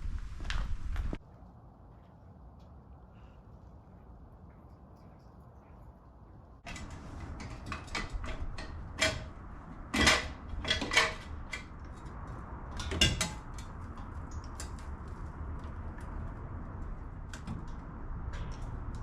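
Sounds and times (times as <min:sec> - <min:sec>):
metal tools clinking: 0:06.7 - 0:15.0.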